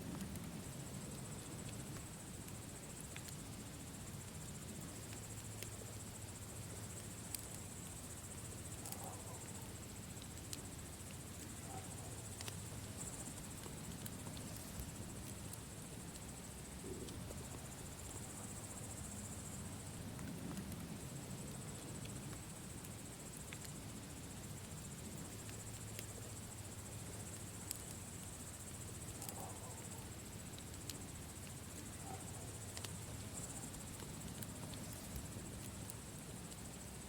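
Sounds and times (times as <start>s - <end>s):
campfire crackling: 0.0s - 37.0s
crickets chirring: 0.0s - 37.0s.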